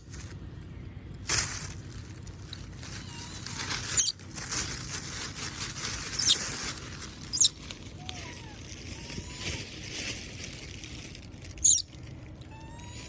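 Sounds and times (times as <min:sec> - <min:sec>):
soft rustling: 0:01.3 - 0:08.0
monkeys squeaking: 0:02.9 - 0:04.2, 0:06.1 - 0:06.6, 0:07.3 - 0:07.6, 0:11.6 - 0:11.9, 0:12.5 - 0:13.0.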